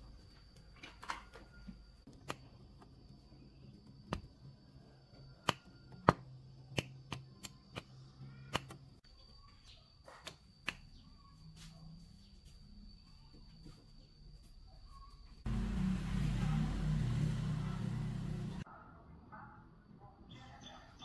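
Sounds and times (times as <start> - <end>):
low hum: 15.5 - 18.6.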